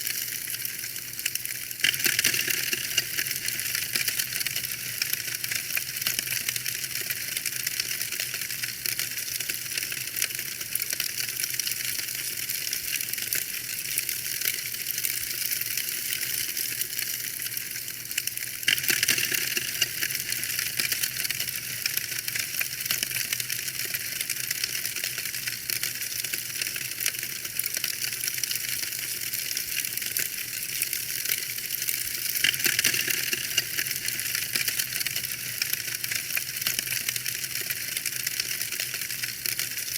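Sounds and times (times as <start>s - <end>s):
fireplace fire crackling: 0.0s - 39.9s.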